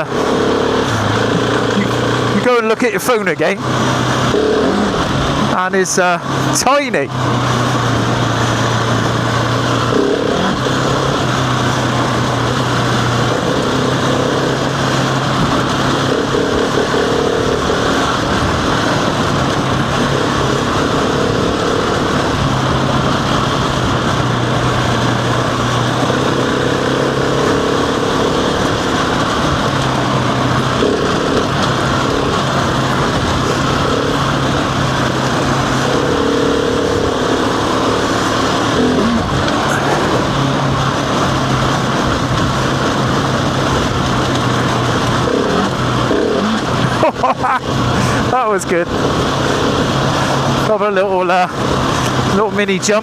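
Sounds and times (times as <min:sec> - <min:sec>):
heavy wind noise: 0:00.0 - 0:53.0
motorcycle engine: 0:00.0 - 0:53.0
tyre noise: 0:07.2 - 0:50.7.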